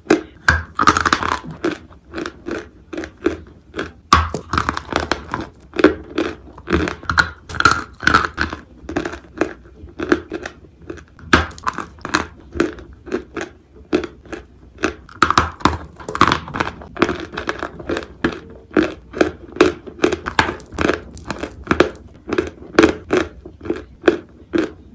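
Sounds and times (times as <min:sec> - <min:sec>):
clay chunks being chewed: 0:00.0 - 0:24.9.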